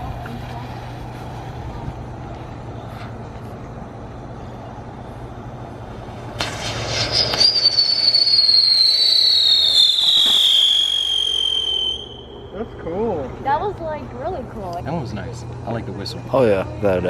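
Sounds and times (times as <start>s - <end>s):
firework hiss: 6.0s - 12.2s
shrill falling firework whistle: 6.4s - 12.6s.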